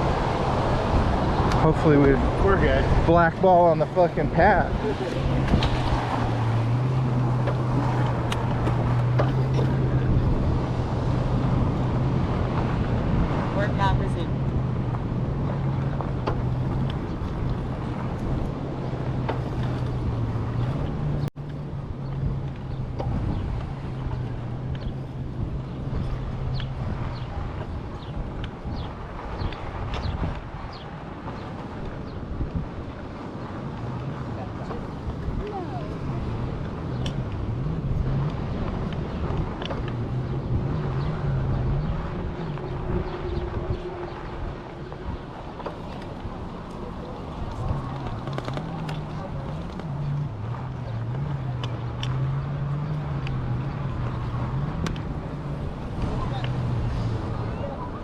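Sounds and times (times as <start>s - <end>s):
wind rush on microphone: 0.0s - 58.0s
light ticks from tyres and frame: 26.5s - 32.6s, 36.8s - 37.5s, 38.2s - 41.2s, 44.9s - 57.3s
low wavering hum: 34.3s - 58.0s.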